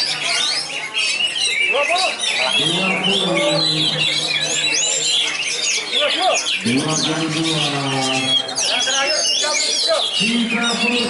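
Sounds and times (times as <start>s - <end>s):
songbirds whistling and chirping: 0.0s - 11.0s
man's drawn-out voice: 2.5s - 5.1s, 6.6s - 8.6s, 10.2s - 11.0s.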